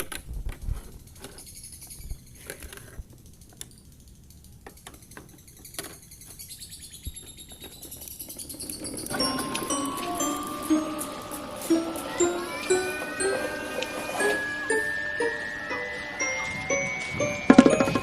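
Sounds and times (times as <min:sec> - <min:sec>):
music: 0:09.1 - 0:18.0.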